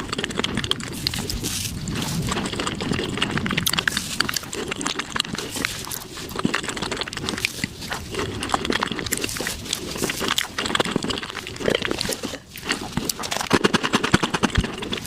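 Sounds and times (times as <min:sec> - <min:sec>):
sped-up chewing and mouth smacks: 0:00.0 - 0:15.0.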